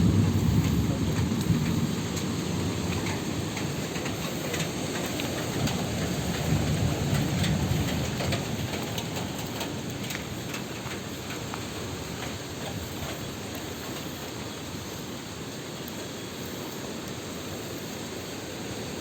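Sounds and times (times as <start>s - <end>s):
thunder rumbling: 0.0s - 13.9s
heavy rain falling: 0.0s - 19.0s
raindrops striking close by: 0.0s - 19.0s.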